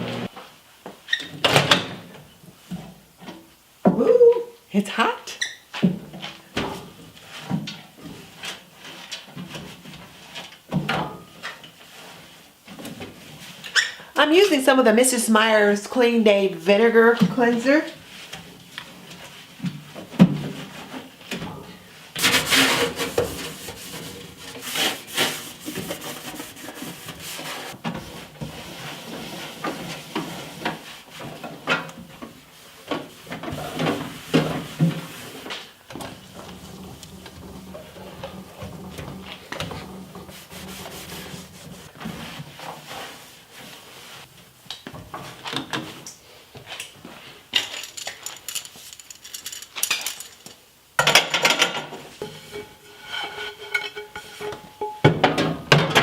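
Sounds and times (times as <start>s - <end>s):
rubbing inside microwave: 22.2s - 27.8s, 36.6s - 44.0s.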